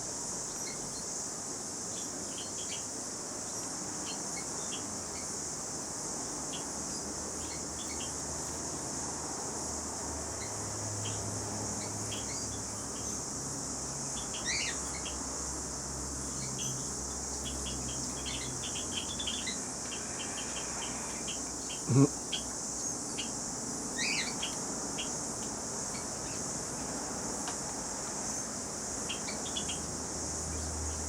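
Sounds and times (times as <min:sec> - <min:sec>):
high insect drone: 0:00.0 - 0:31.0
small birds chirping: 0:00.4 - 0:08.9, 0:10.3 - 0:15.5, 0:16.1 - 0:27.0, 0:28.2 - 0:31.0
sweeping bird calls: 0:14.1 - 0:15.2, 0:16.3 - 0:23.4, 0:24.0 - 0:25.2.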